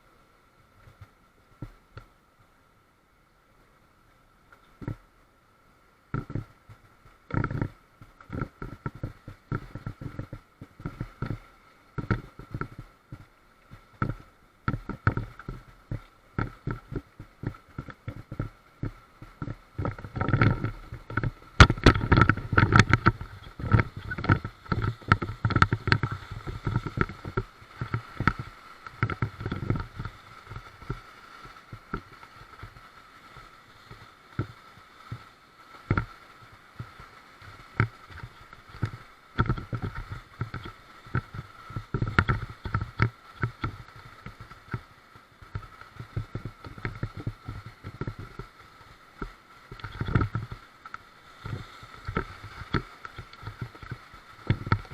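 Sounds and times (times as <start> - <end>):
water splashing and sloshing: 3.5 - 54.9
raft knocks and thumps: 19.4 - 28.4.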